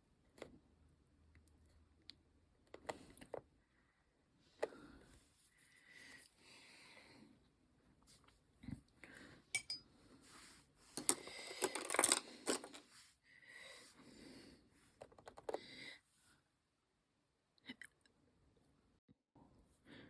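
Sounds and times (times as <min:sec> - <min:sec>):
small hard objects clicking on table: 0:11.0 - 0:12.8.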